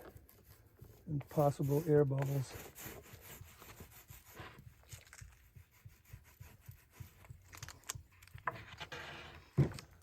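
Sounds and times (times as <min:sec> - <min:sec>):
brush rubbing strokes: 0:00.0 - 0:07.6.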